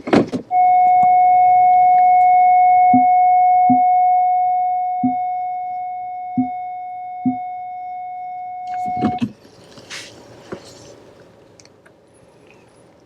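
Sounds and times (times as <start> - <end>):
electronic warning tone: 0.5 - 9.2.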